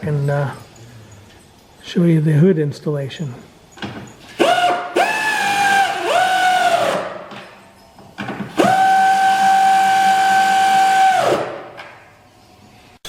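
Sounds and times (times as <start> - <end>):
power drill whining: 4.2 - 7.1, 8.5 - 11.5.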